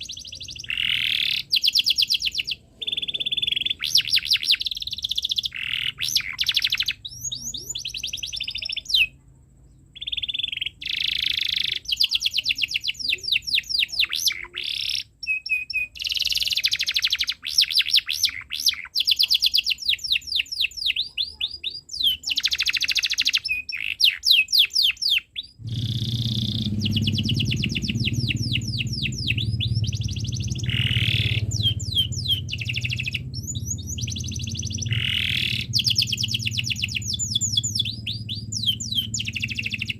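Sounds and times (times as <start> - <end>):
canary singing chirps and trills: 0.0 - 39.9
low hum: 25.6 - 39.9.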